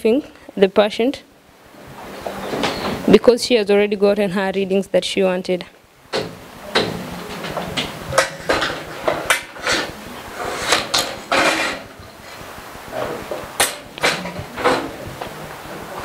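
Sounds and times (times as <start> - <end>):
medical equipment clattering: 6.1 - 12.1, 12.9 - 16.0.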